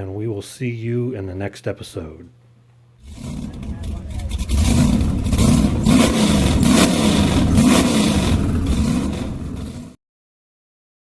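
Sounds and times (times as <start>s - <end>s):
engine revving: 3.0s - 10.0s.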